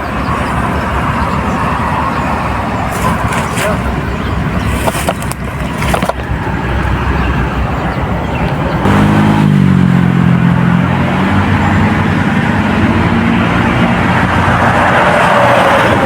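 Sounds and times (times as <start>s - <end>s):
constant background hum: 0.0s - 8.9s.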